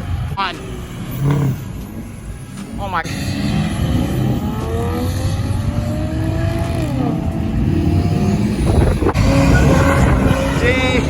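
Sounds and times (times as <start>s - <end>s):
car engine accelerating: 0.6s - 11.0s
wind buffeting microphone: 7.3s - 11.0s.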